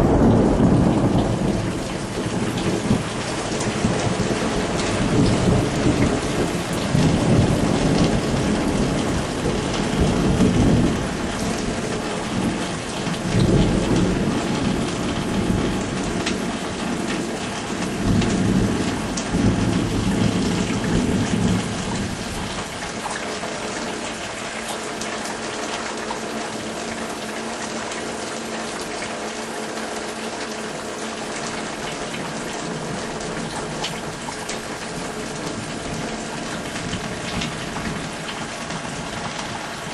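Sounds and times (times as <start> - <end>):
thunder rumbling: 0.0 - 23.0, 32.1 - 39.9
steady rain: 0.0 - 39.9.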